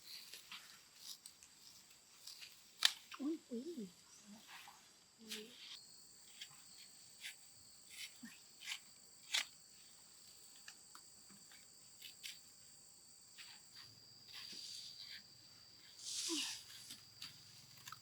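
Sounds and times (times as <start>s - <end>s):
rustle: 0.0s - 18.0s
high-pitched insect drone: 11.5s - 17.8s.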